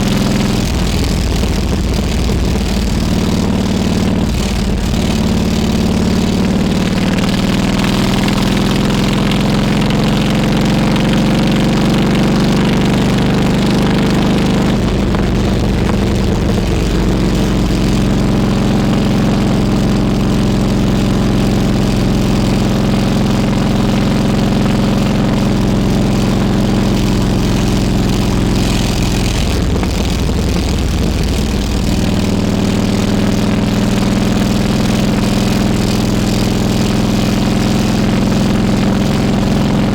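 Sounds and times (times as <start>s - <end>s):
motorcycle engine running: 0.0s - 39.9s
steady rush of noise: 0.0s - 39.9s.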